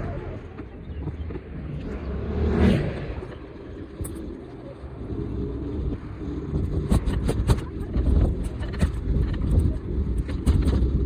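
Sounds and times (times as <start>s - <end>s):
city traffic rumble: 0.0s - 11.0s
vehicle passing close by: 1.0s - 7.2s.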